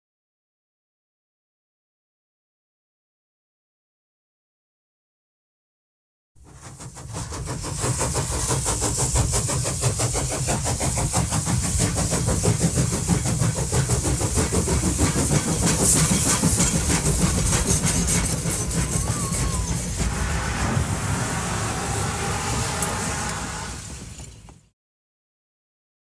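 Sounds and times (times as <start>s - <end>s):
hiss: 6.4s - 24.5s
machine running with fast clatter: 6.5s - 24.7s.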